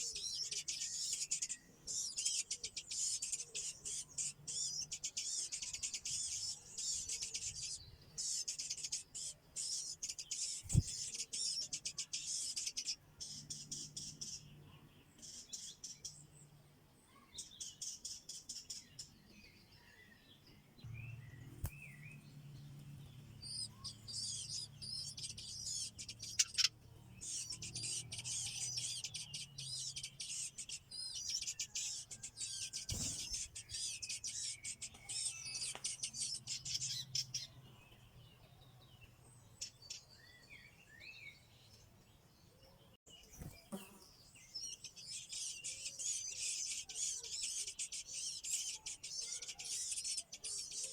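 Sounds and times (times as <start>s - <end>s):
chicks chirping: 0.0s - 14.3s, 22.7s - 37.6s, 43.4s - 50.9s.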